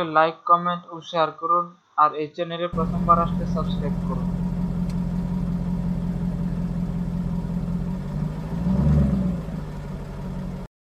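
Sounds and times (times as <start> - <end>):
car engine idling and revving: 2.8 - 10.7.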